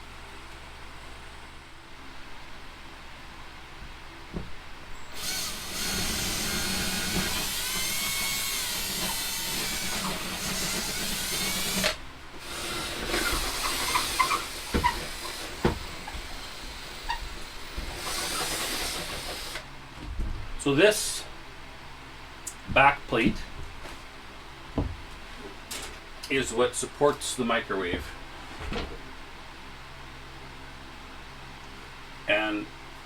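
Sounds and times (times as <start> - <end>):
power drill running: 5.1 - 19.7.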